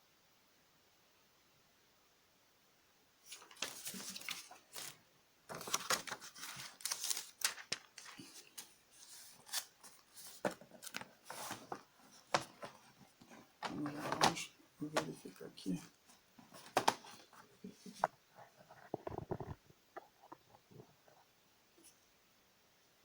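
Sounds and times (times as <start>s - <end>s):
paper and cardboard rustling: 3.2s - 19.5s.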